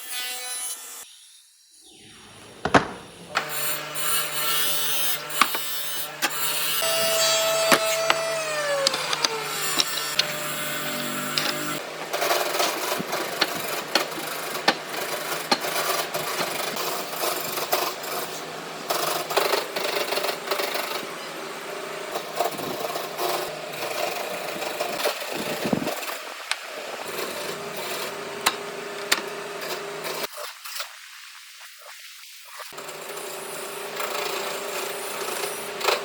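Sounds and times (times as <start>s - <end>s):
sharp knocks: 2.6s - 3.2s, 5.4s - 10.3s
tool scraping on wood: 2.6s - 19.6s.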